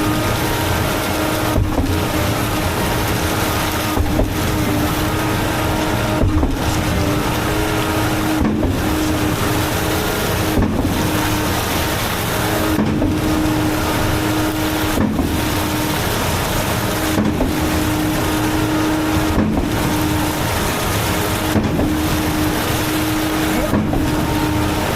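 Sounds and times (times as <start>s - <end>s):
engine running: 0.0s - 24.9s
high-pressure water spray: 0.0s - 24.9s.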